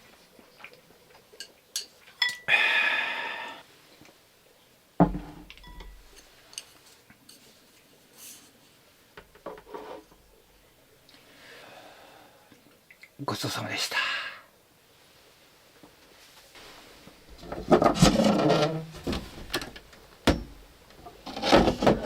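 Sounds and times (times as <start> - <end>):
tableware clinking: 1.4 - 2.5, 5.1 - 7.5
heavy thump: 5.0 - 5.4.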